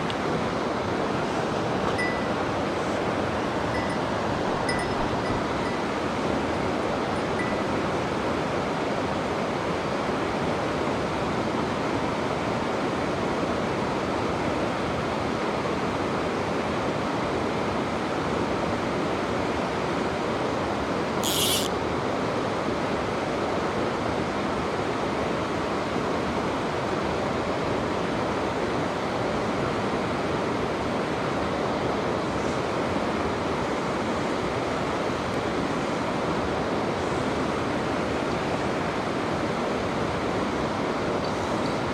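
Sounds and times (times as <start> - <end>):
brief high hiss: 21.2 - 21.7.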